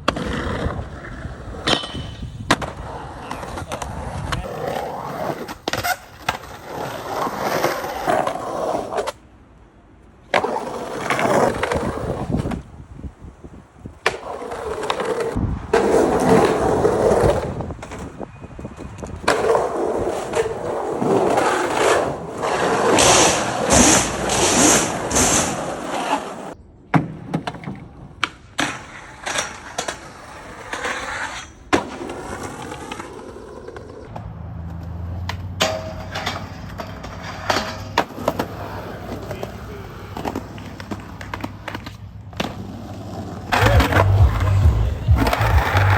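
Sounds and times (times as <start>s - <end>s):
skateboards rolling: 0.0s - 45.9s
skateboard clacks: 14.0s - 45.9s
skateboard landing impacts: 22.4s - 30.1s.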